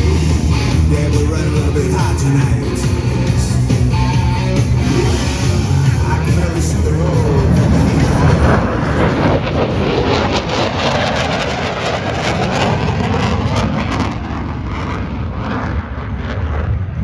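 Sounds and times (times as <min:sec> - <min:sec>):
loud crackling jet noise: 0:00.0 - 0:17.0.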